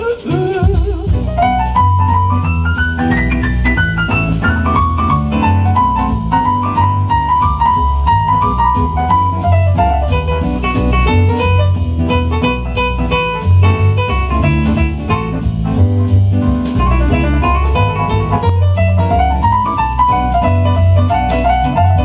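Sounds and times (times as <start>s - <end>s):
bass line: 0.0s - 22.0s
jazz piano solo: 0.0s - 22.0s.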